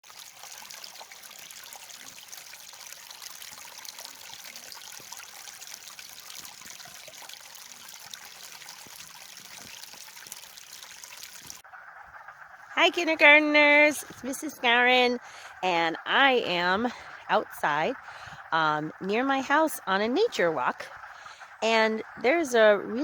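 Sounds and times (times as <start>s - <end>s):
frogs calling: 10.5s - 23.0s.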